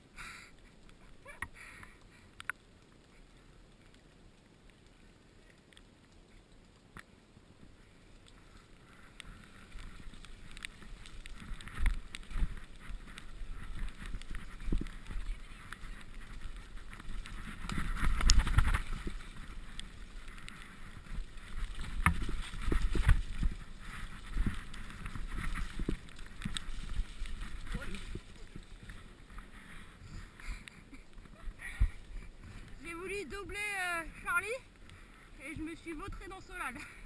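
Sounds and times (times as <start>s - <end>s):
bike tyre noise on mud: 0.0s - 37.0s
bike rattling: 7.8s - 34.9s
wind on microphone: 11.2s - 30.4s.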